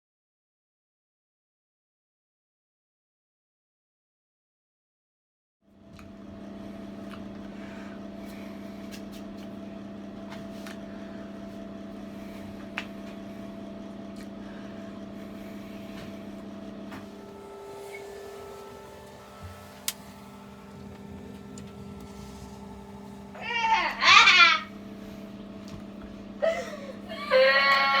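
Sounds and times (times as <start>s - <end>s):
washing machine motor hum: 5.7s - 28.0s.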